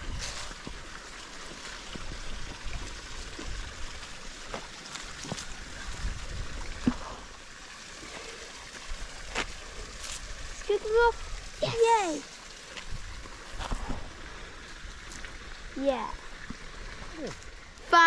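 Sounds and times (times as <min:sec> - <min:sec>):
wind rumble on microphone: 0:00.0 - 0:00.8, 0:05.7 - 0:07.2
faint water trickling: 0:00.0 - 0:18.0.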